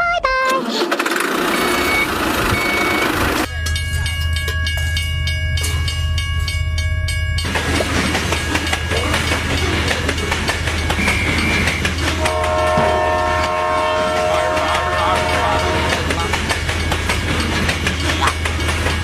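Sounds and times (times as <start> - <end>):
low rumble with clattering: 2.4 - 19.0
horn chord: 12.2 - 16.0.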